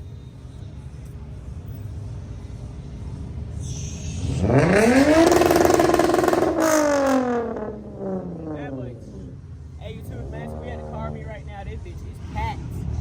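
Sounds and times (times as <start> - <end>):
car engine revving: 4.2 - 11.6.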